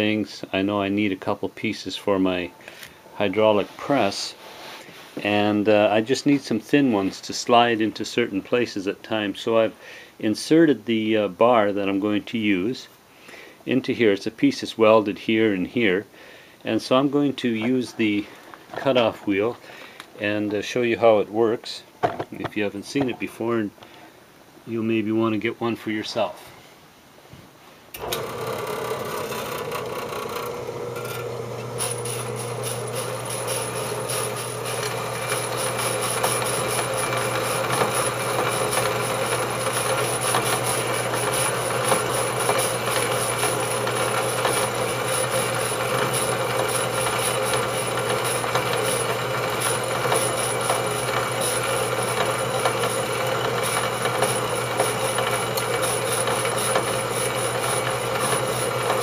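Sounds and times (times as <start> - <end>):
bandsaw motor hum: 28.0 - 59.0
high saw whine: 28.0 - 59.0.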